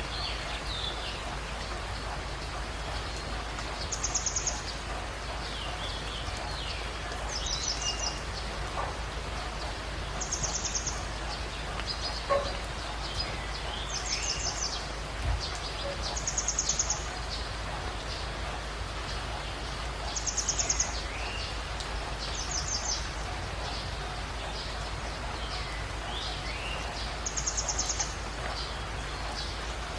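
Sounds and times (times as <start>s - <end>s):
steady ambient hiss: 0.0s - 29.9s.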